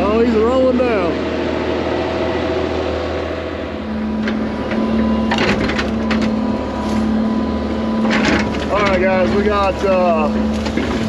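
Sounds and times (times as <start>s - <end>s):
diesel machine humming: 0.0s - 11.0s
branches snapping and cracking: 8.0s - 11.0s.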